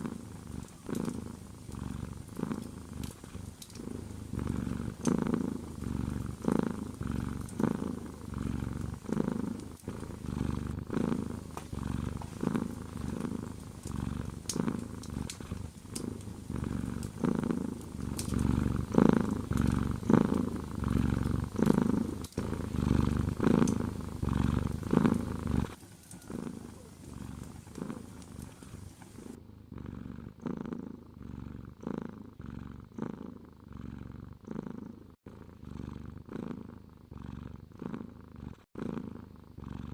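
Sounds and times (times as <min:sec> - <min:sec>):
cat purring: 0:00.0 - 0:39.9
faint sharp clicks: 0:02.5 - 0:03.9, 0:13.8 - 0:16.3, 0:17.8 - 0:18.5, 0:23.6 - 0:23.8.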